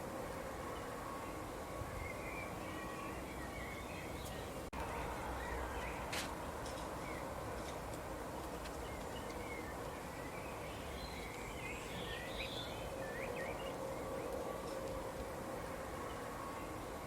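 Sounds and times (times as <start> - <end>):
small birds chirping: 0.7 - 7.7, 8.6 - 14.8.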